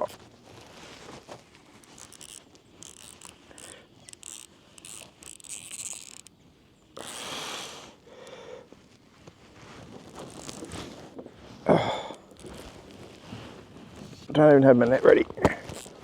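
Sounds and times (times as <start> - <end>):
fishing reel clicking: 1.9 - 6.3, 7.0 - 7.4, 15.7 - 15.9.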